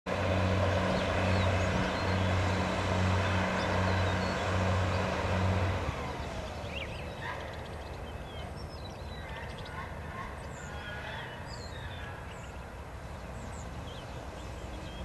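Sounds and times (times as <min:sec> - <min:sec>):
drilling rig machinery drone: 0:00.1 - 0:08.1.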